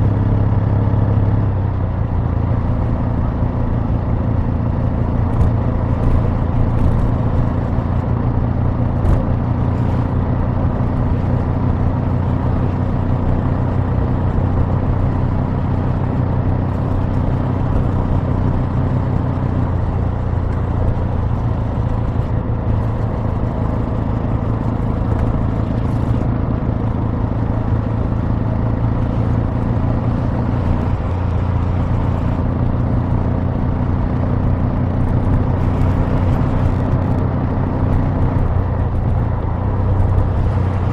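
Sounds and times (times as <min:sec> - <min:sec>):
motorcycle engine exhaust running steadily: 0:00.0 - 0:40.9.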